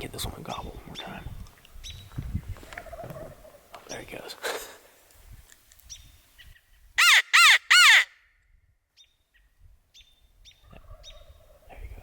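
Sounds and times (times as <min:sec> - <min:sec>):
distant high bird calls: 0:05.9 - 0:08.2, 0:08.9 - 0:11.6
crow cawing: 0:07.0 - 0:08.1.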